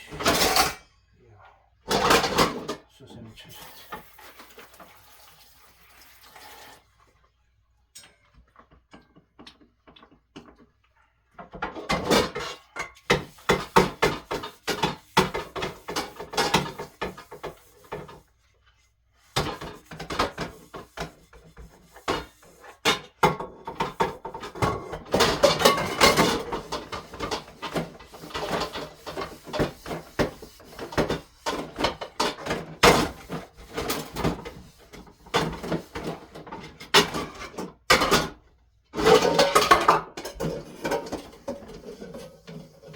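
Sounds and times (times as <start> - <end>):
dishes and pots clattering: 0.0 - 1.0, 1.8 - 2.9, 11.3 - 18.2, 19.3 - 38.4, 39.0 - 42.9.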